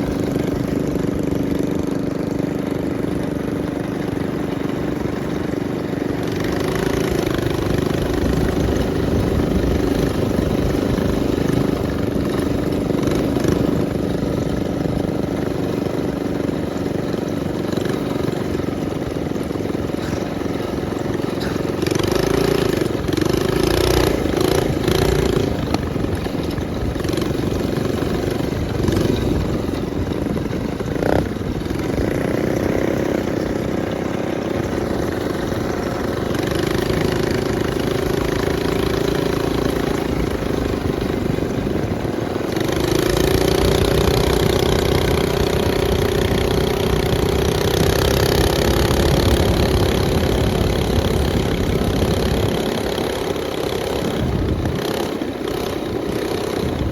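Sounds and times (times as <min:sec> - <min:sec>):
minibike engine running: 0:00.0 - 0:56.9.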